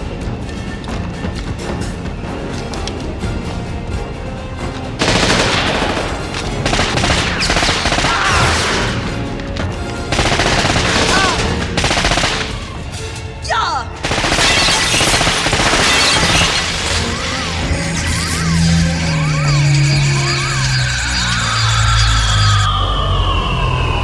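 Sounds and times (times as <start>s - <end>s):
loud orchestral score: 0.0s - 24.0s
automatic gunfire: 5.0s - 9.1s, 10.1s - 12.8s, 14.0s - 17.4s.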